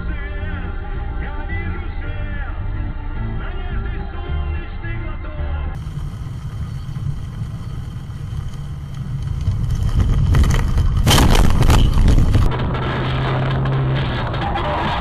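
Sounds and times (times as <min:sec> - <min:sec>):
car engine and road rumble: 0:00.0 - 0:15.0
loud rough burst of noise: 0:05.8 - 0:15.0.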